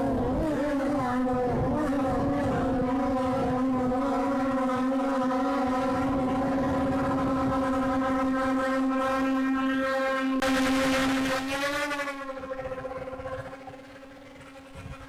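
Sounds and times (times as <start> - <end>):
drone propellers buzzing: 10.4 - 15.0.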